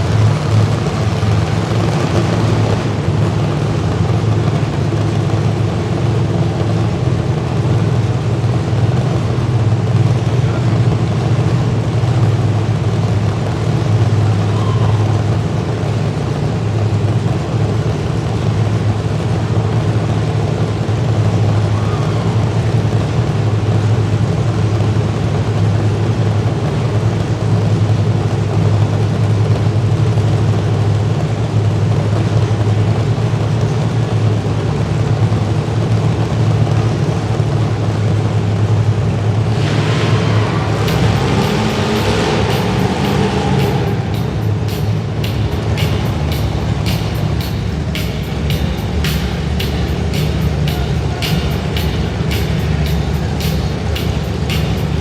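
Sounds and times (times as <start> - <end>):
car engines rumbling: 0.0 - 55.0.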